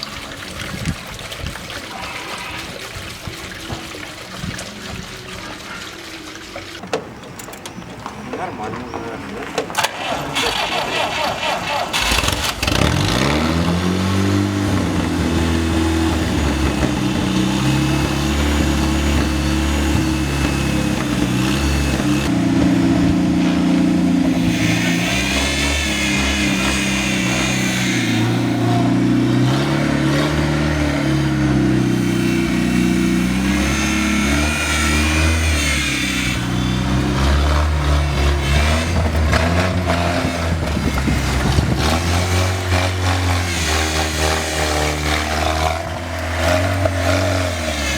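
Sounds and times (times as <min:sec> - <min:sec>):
car engine revving: 0:09.7 - 0:47.9.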